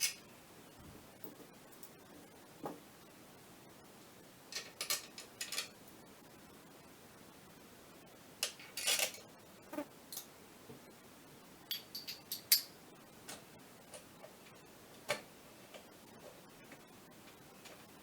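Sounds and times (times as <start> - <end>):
metal parts clicking and tapping: 4.5 - 5.8, 8.4 - 9.2, 11.7 - 12.7.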